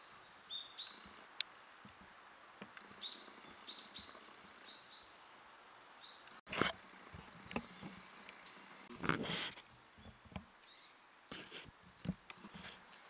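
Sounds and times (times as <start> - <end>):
songbird call notes: 0.0 - 1.2, 2.9 - 5.3, 6.0 - 9.0, 10.0 - 12.1
faint outdoor hiss: 0.0 - 13.0.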